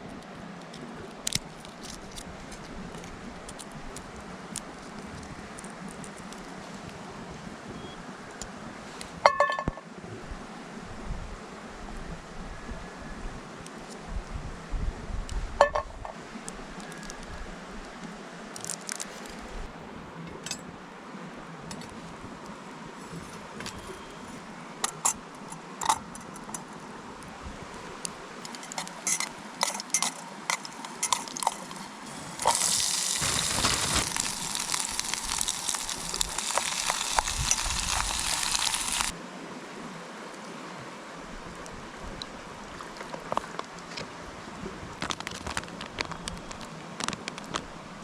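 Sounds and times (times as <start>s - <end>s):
cookware clinking: 9.3s - 9.8s
liquid pouring: 31.1s - 39.1s.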